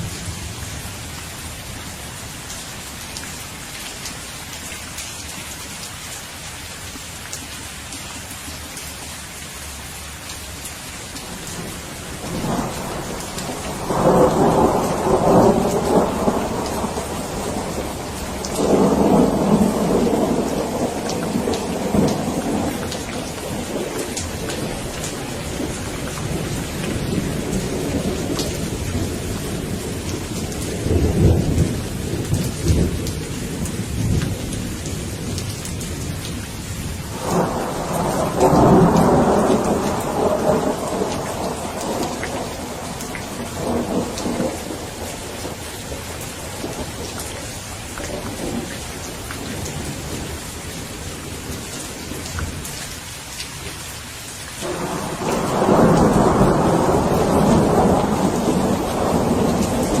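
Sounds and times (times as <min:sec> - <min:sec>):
rain falling: 0:00.0 - 1:00.0
thunder rolling: 0:11.6 - 0:30.0, 0:37.1 - 0:47.1, 0:54.6 - 1:00.0.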